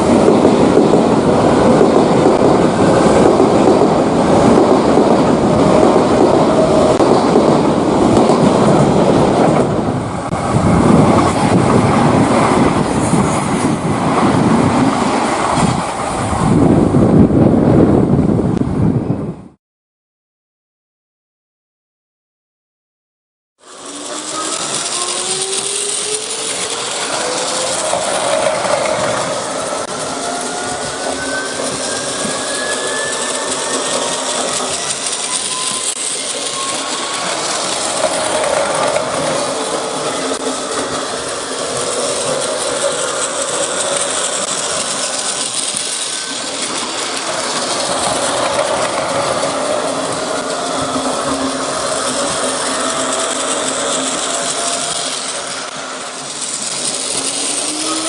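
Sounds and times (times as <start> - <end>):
train running noise: 0.0 - 19.6, 23.6 - 58.0
electric train motor whine: 23.6 - 58.0.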